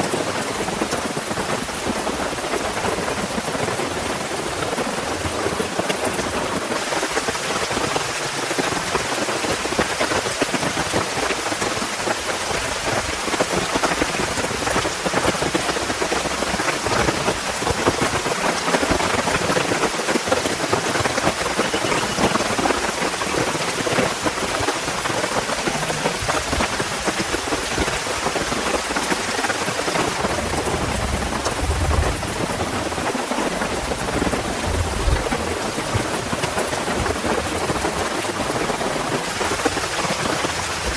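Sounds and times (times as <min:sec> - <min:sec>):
heavy rain falling: 0:00.0 - 0:40.9
low thunder rumble: 0:21.2 - 0:39.0.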